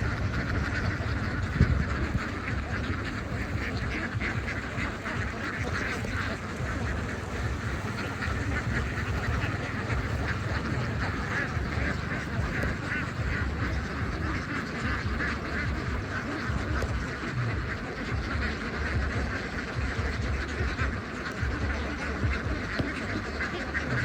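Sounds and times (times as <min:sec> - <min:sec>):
low rumble: 0:00.0 - 0:20.9
ducks quacking: 0:00.0 - 0:24.0.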